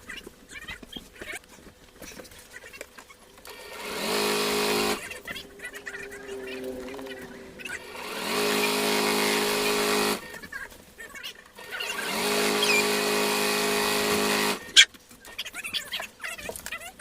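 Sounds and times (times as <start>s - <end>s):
sewing machine stitching: 3.5s - 5.3s, 7.6s - 10.4s, 11.6s - 14.9s.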